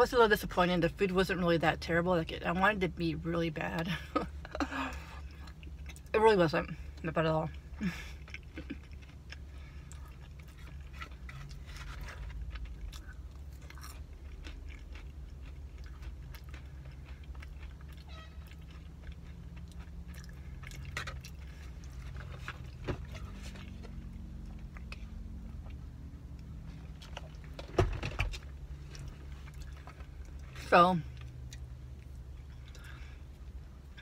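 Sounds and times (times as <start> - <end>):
steady low hum: 0.0 - 34.0
close-up chewing: 7.5 - 27.6.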